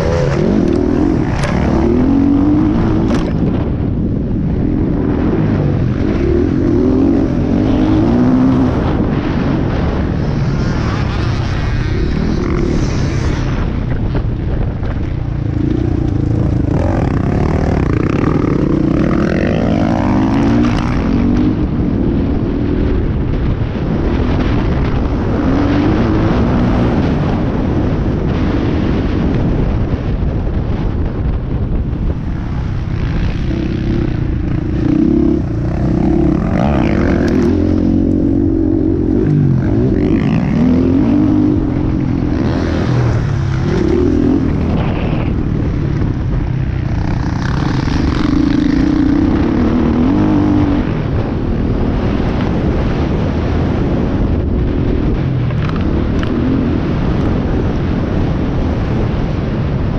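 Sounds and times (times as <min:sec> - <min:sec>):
dirt bike engine revving: 0:00.0 - 0:03.8, 0:05.0 - 0:13.8, 0:15.2 - 0:22.0, 0:32.3 - 0:51.1
wind noise on microphone: 0:00.0 - 0:59.9.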